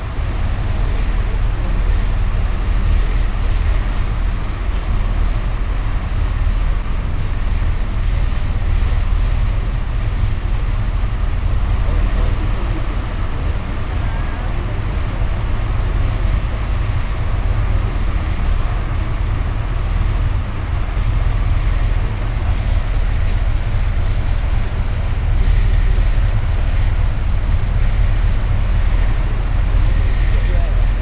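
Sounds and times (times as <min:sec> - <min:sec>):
churning wake rushing: 0:00.0 - 0:31.0
ferry engine low rumble: 0:00.0 - 0:31.0.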